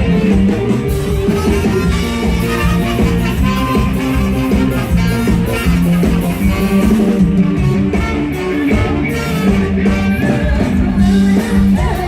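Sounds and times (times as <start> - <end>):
band playing instrumental music: 0.0 - 12.0
bass and drums: 0.0 - 12.0
guitar: 0.0 - 12.0.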